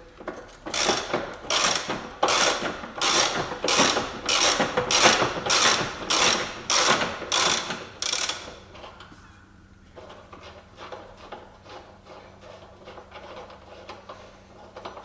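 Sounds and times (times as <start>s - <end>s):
ratchet wrench clicking: 0.8s - 8.6s.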